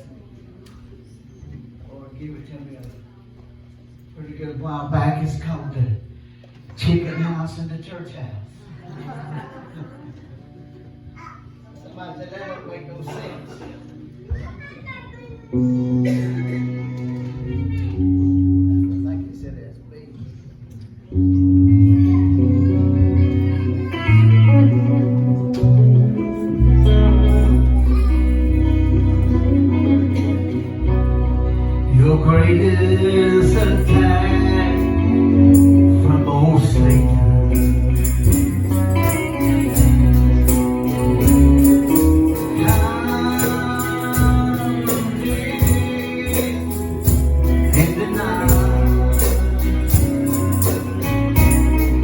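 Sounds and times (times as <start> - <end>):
live band playing gospel music: 21.3 - 52.0
tambourine shaken: 26.1 - 30.8, 33.4 - 36.1, 36.7 - 52.0
man singing: 31.8 - 52.0.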